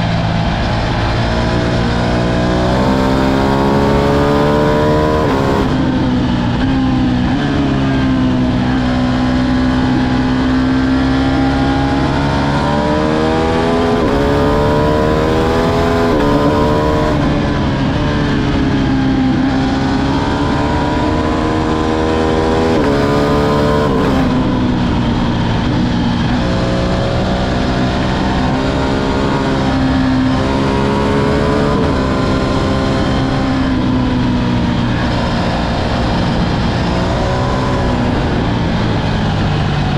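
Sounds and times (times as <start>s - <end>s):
motorcycle engine revving: 0.0s - 39.9s
steady rushing noise: 12.6s - 39.9s.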